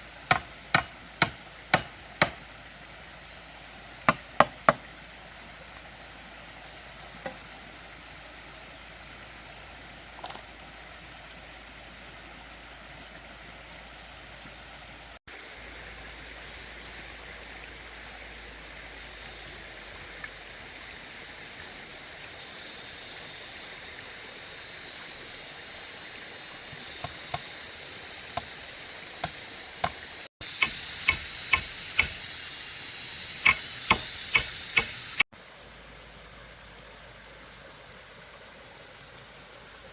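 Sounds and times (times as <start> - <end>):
steady hiss: 0.0 - 39.9
sharp knocks: 0.3 - 2.4, 30.6 - 32.2, 33.5 - 35.0.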